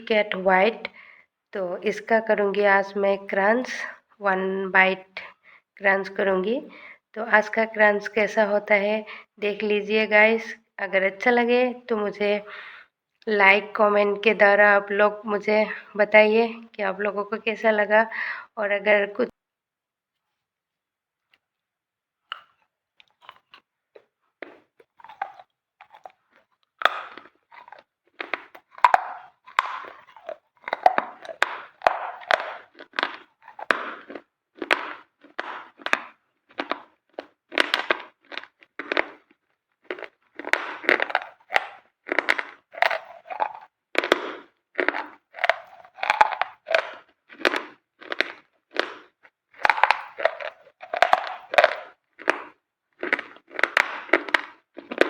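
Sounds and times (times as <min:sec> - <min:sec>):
person crunching brittle food: 0:22.2 - 0:55.0.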